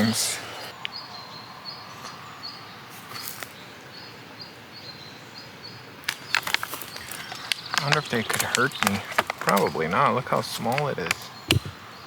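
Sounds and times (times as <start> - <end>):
steady outdoor hiss: 0.0 - 12.0
sharp clicks or rustles: 6.1 - 11.7.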